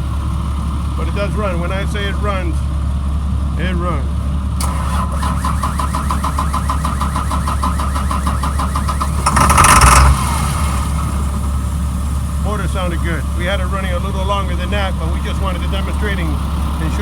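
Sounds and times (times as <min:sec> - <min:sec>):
diesel engine clattering: 0:00.0 - 0:17.0
loud burst of engine noise: 0:04.6 - 0:17.0.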